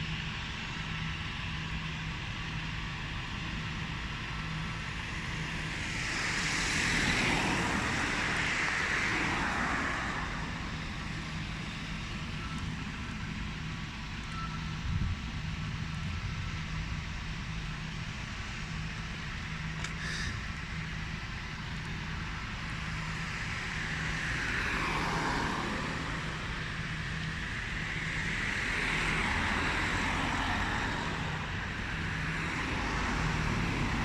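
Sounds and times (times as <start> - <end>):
steady background hum: 0.0 - 34.0
vehicle passing by: 5.0 - 11.9, 22.8 - 34.0.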